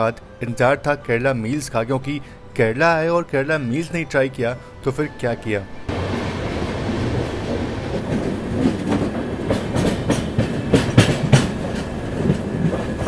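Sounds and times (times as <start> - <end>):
train rumble: 0.0 - 13.0
wheels clacking over rail joints: 5.9 - 13.0.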